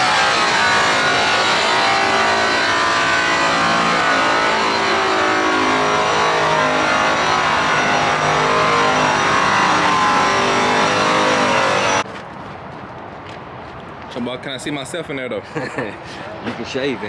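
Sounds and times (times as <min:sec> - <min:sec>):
power polisher whining: 0:00.0 - 0:12.0.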